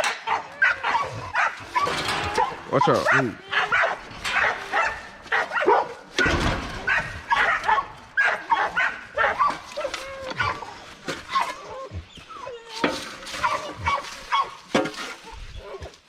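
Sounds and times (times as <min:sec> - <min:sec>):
dogs barking: 0:00.0 - 0:12.0, 0:13.3 - 0:14.9
dog whining: 0:00.0 - 0:14.6
low thud: 0:06.0 - 0:08.1.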